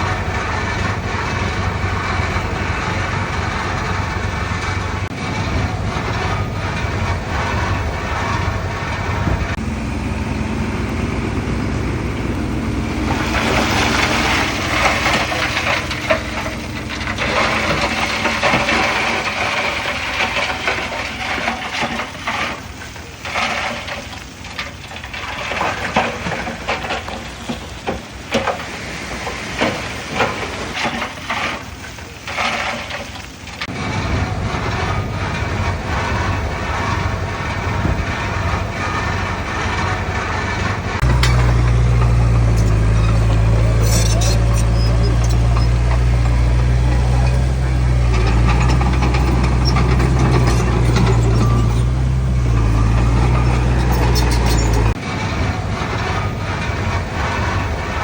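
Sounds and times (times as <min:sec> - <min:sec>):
heavy machinery diesel engine: 0:00.0 - 0:58.0
soil rushing: 0:00.0 - 0:58.0
cracks and clatter: 0:13.0 - 0:58.0.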